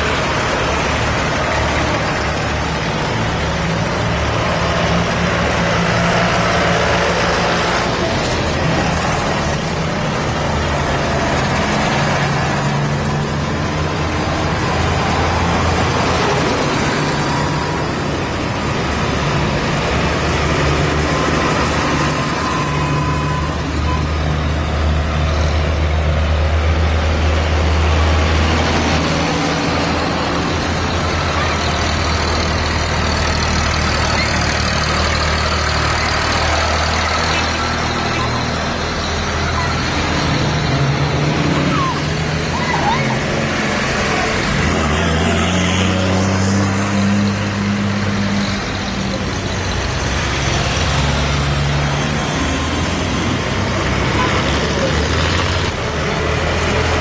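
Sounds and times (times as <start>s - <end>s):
tractor engines droning: 0.0s - 57.0s.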